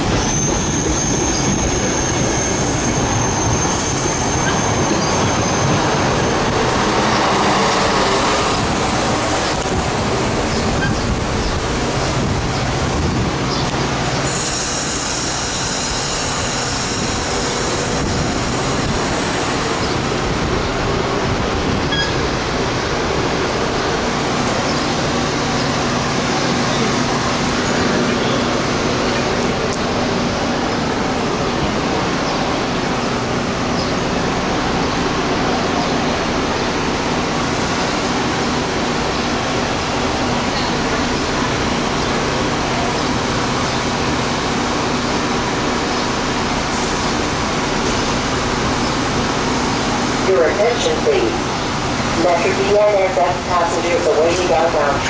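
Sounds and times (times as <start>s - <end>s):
high brake squeal: 0.0s - 7.9s, 10.6s - 11.2s, 14.2s - 18.6s, 21.8s - 22.3s
train wheels rumbling on rail: 0.0s - 55.0s.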